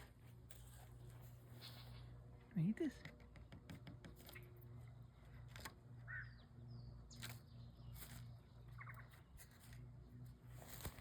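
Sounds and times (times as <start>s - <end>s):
low steady hum: 0.0s - 11.0s
faint bird chirps: 6.0s - 9.3s.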